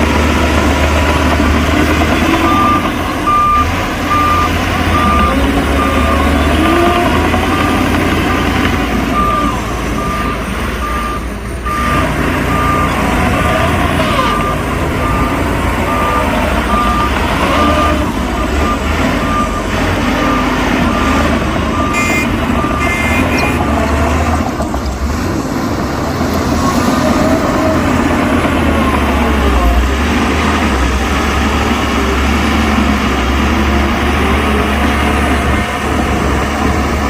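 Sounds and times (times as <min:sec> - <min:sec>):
diesel truck engine: 0:00.0 - 0:37.0
reversing alarm beeping: 0:02.0 - 0:23.8.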